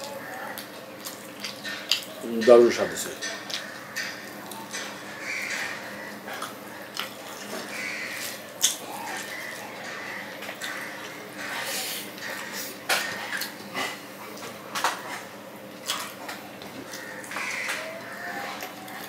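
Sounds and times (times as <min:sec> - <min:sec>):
wet chewing and lip-smacking: 0:00.0 - 0:02.6, 0:03.2 - 0:19.0.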